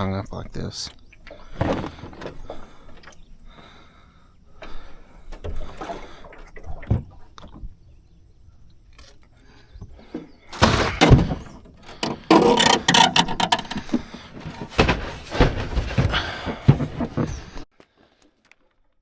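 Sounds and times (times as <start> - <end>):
knocks and thuds on a boat: 1.4 - 3.6, 4.6 - 7.8, 9.8 - 17.6
clattering: 10.6 - 17.5.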